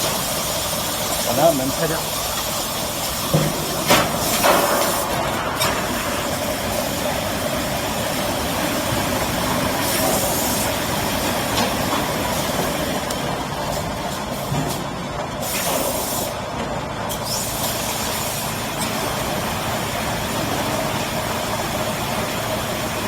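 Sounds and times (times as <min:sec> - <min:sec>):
bottle washing machine running: 0:00.0 - 0:23.0
spraying hiss: 0:09.4 - 0:11.4, 0:15.4 - 0:16.4.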